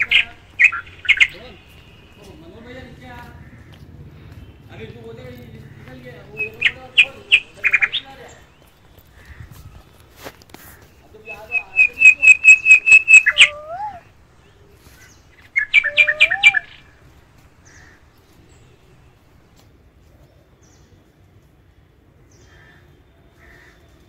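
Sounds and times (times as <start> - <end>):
bird calling loudly: 0.0 - 10.0, 10.6 - 18.4.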